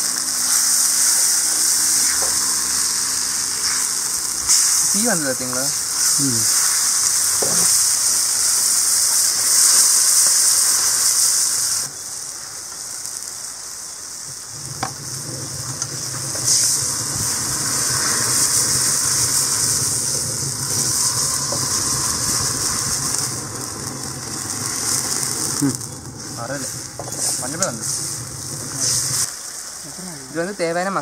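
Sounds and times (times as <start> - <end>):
vegetables sizzling in a wok: 0.0 - 31.0
spatula stirring: 14.6 - 29.3.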